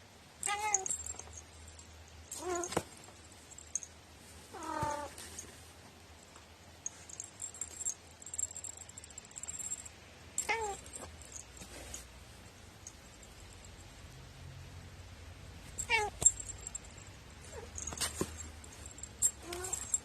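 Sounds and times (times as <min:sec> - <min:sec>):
cat meowing: 0:10.5 - 0:10.8, 0:15.9 - 0:16.2.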